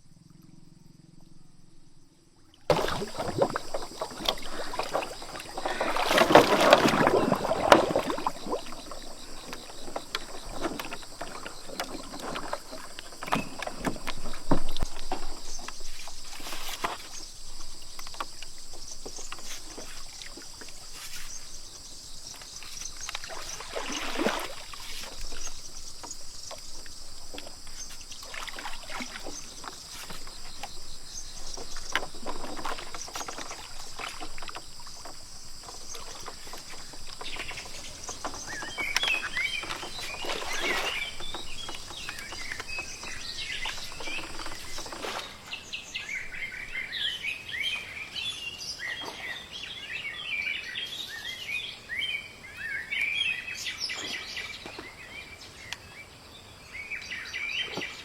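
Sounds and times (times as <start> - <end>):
short knocks and rustles: 2.7 - 45.5
birds chirping and singing: 24.9 - 47.6.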